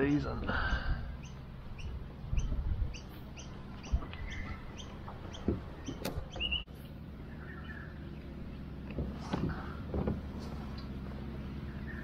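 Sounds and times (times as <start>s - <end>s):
small bird chirping: 0.7s - 8.7s.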